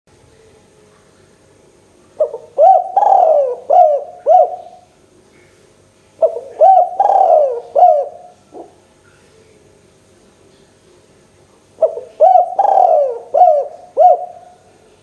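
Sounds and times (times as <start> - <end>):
dove cooing: 2.2 - 4.9, 6.2 - 8.8, 11.8 - 14.8.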